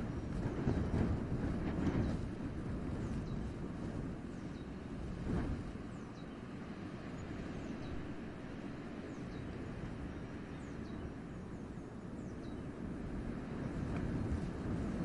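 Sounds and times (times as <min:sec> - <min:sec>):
wind through forest: 0:00.0 - 0:15.0.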